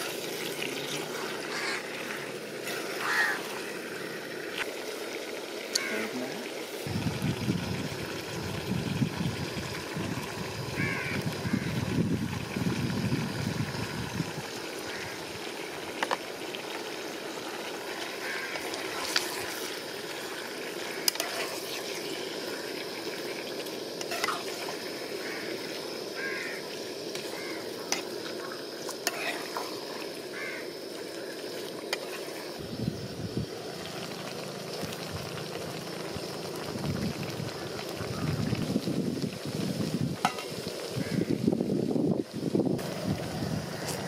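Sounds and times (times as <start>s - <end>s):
meat sizzling in a pot: 0.0s - 44.0s
wind buffeting microphone: 6.9s - 14.5s, 36.7s - 40.2s.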